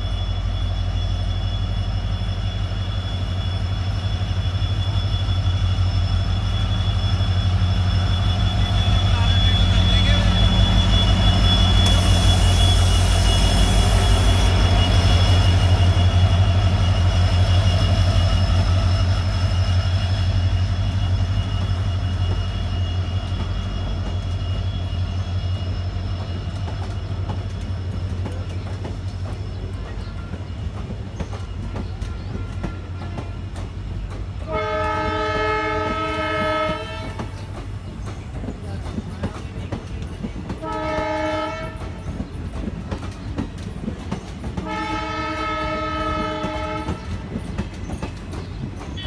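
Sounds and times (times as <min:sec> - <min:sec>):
diesel locomotive engine throbbing: 0:00.0 - 0:49.0
locomotive horn: 0:34.5 - 0:37.3, 0:40.6 - 0:42.0, 0:44.6 - 0:47.2.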